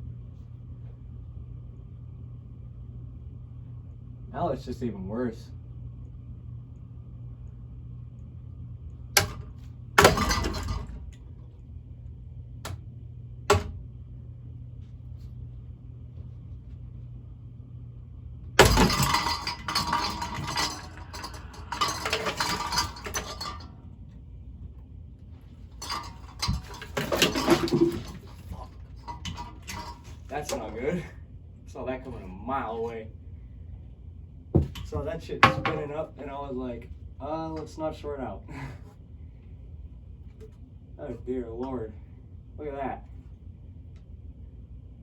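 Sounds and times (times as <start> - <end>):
ceiling fan motor hum: 0.0 - 45.0
fan blades knocking: 9.2 - 11.2, 13.5 - 13.8, 18.6 - 23.7, 25.8 - 30.8, 34.6 - 36.3
parts clattering: 9.2 - 11.2, 18.6 - 23.8, 25.6 - 30.8, 34.6 - 36.1
crash of breaking parts: 10.0 - 11.0, 18.6 - 23.7, 25.8 - 30.3.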